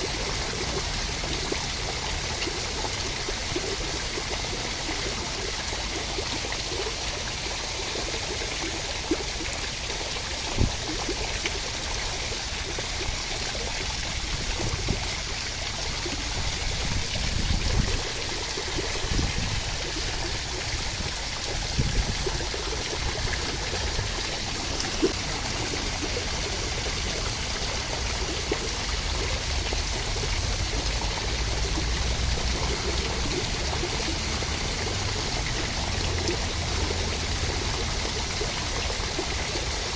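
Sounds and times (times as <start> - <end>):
steady rain: 0.0 - 9.4, 10.2 - 38.4
water drips ticking: 0.1 - 39.9.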